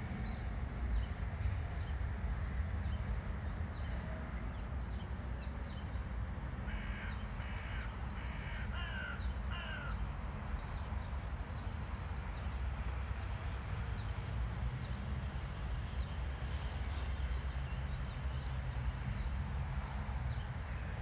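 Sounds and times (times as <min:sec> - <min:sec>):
harsh bird calls: 0:06.7 - 0:10.2.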